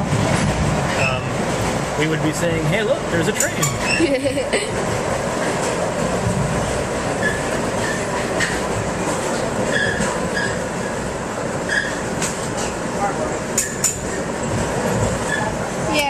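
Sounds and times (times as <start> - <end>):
train coach rumble and rail noise: 0.0 - 16.0
faint high squeaks: 9.7 - 10.6, 11.7 - 12.0.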